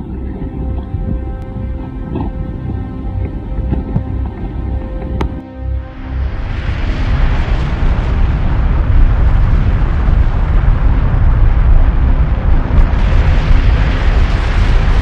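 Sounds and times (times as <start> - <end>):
volcanic eruption rumble: 6.0 - 15.0.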